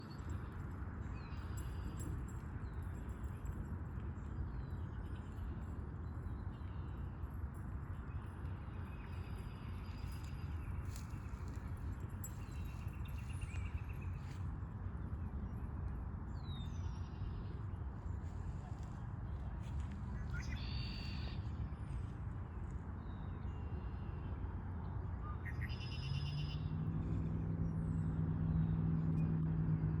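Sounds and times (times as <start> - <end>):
traffic rumble: 4.2 - 30.0
approaching vehicle engine hum: 26.1 - 30.0.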